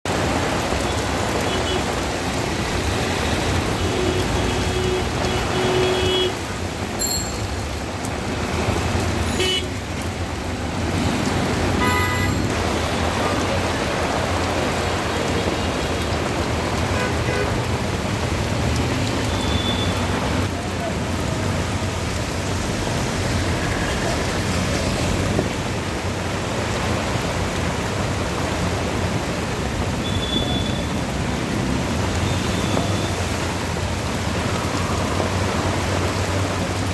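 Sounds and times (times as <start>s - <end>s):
steady rain: 0.1s - 36.9s
street traffic hiss: 0.2s - 36.9s
vehicle horn toots: 9.4s - 9.7s, 11.8s - 12.5s.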